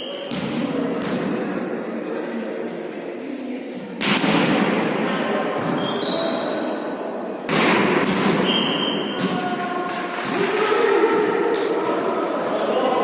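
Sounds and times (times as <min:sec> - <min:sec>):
ball hit ringing in a hall: 0:07.5 - 0:12.2.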